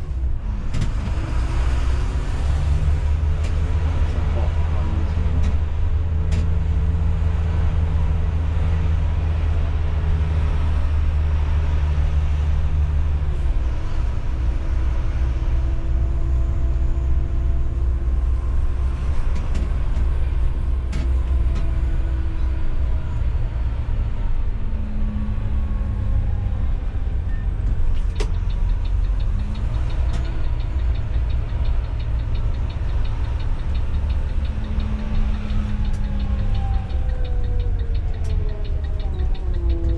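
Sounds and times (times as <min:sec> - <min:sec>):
bus engine humming: 0:00.0 - 0:39.9
sharp clicks: 0:28.0 - 0:39.9
fast even ticking: 0:28.2 - 0:39.9.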